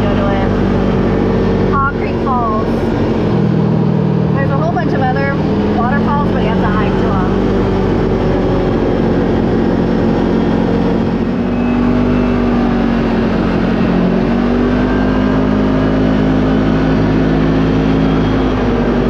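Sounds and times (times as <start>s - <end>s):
utv engine running: 0.0s - 19.0s.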